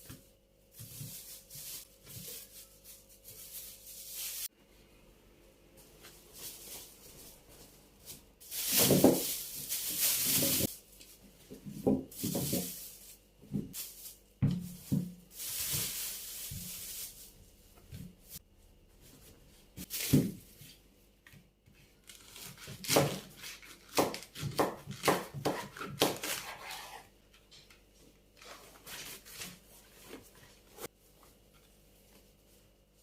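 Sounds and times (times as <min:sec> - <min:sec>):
rustling: 0:00.0 - 0:04.5, 0:05.7 - 0:20.8.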